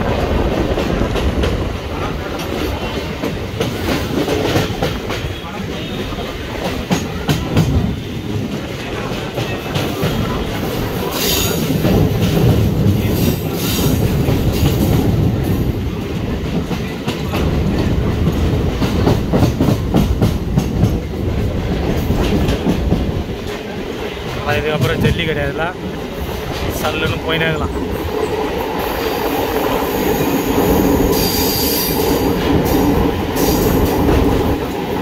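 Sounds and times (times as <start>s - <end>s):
train wheels rumbling and clacking: 0.0s - 35.0s
high wheel squeal: 31.1s - 32.0s.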